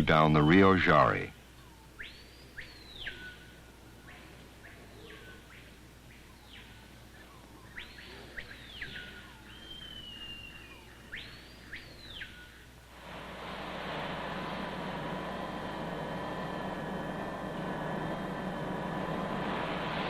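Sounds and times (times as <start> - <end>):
faint low hum: 0.0 - 20.0
long steady bird whistle: 1.4 - 20.0
high bird calls: 1.5 - 12.8.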